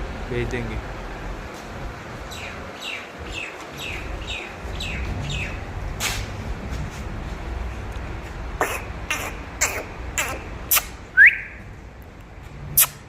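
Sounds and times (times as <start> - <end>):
steady low rumble: 0.0 - 13.0
bird chirping: 2.3 - 5.6, 11.2 - 11.6.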